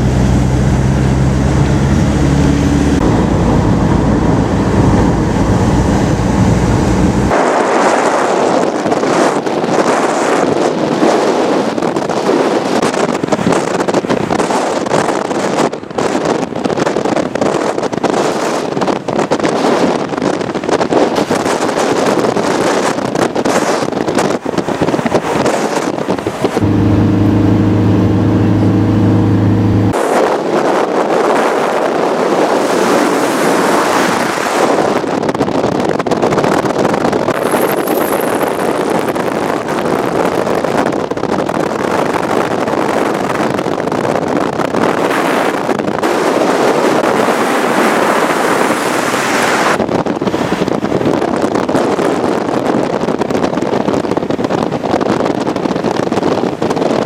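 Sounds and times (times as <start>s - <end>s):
loud low hum: 0.0s - 7.3s, 26.5s - 30.2s
moving vehicle: 0.0s - 57.0s
wind buffeting microphone: 0.0s - 57.0s.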